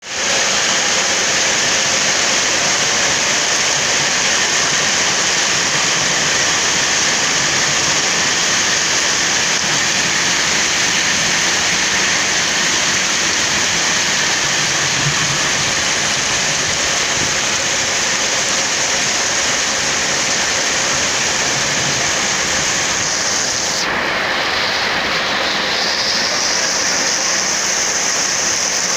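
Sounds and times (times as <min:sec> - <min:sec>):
steady rain falling: 0:00.0 - 0:28.9.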